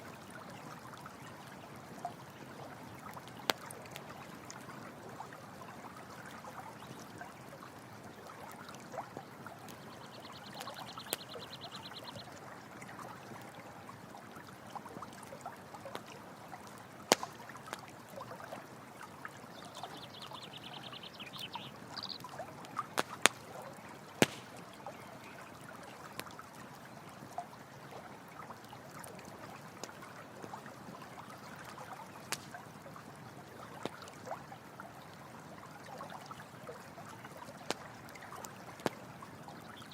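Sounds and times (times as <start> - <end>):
stream running: 0.0 - 39.9
campfire popping: 3.1 - 4.3, 9.6 - 12.2, 16.8 - 17.9, 19.7 - 25.0, 32.2 - 32.6, 37.6 - 39.9.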